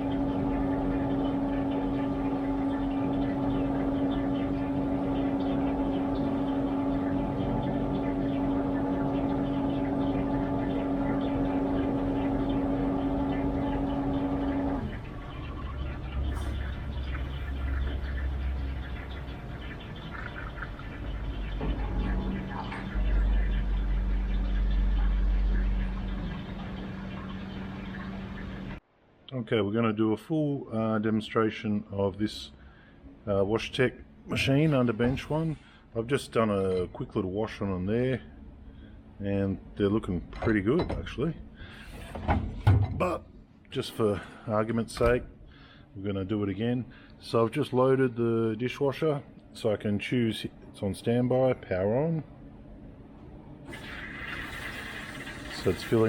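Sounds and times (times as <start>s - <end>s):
dishwasher motor hum: 0.0s - 28.8s, 53.2s - 56.0s
water patter: 0.0s - 28.8s, 53.7s - 56.0s
water hissing: 53.7s - 56.0s.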